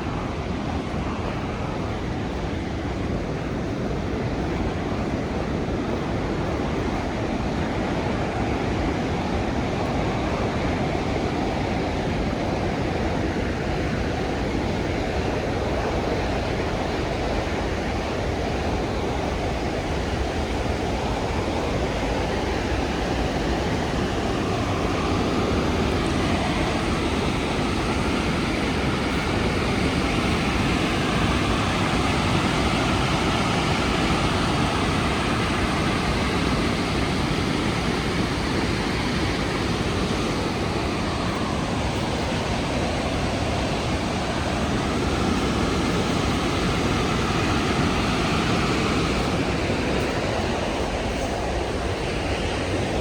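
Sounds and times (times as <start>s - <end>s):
waterfall rushing: 16.5s - 53.0s.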